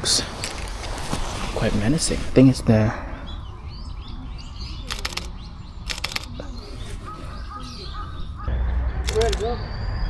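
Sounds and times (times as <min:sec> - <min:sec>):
small birds chirping faintly: 0:00.0 - 0:10.0
camera shutter clicks: 0:04.9 - 0:05.3, 0:05.9 - 0:06.4, 0:09.0 - 0:09.5.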